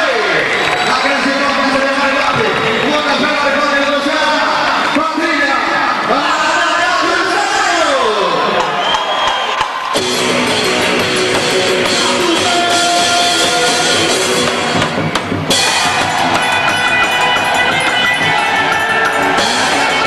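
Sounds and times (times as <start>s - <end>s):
band music: 9.8s - 20.0s
guitar: 9.9s - 20.0s
drum kit: 10.0s - 20.0s.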